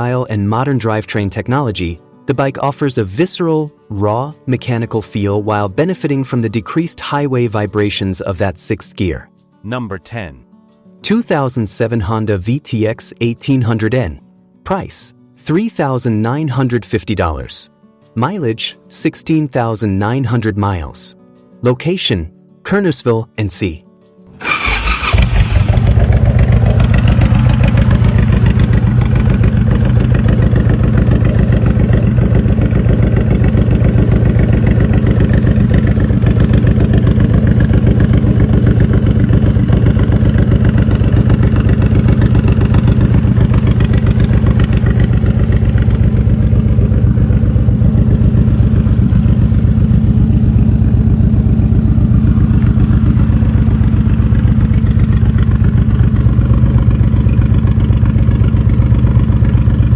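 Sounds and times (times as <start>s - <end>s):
motorcycle engine idling: 24.4s - 59.9s.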